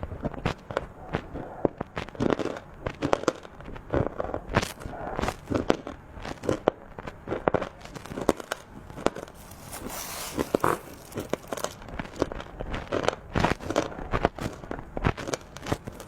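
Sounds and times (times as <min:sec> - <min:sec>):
crunching and chewing: 0:07.8 - 0:16.0
crinkling rustle: 0:07.9 - 0:12.4.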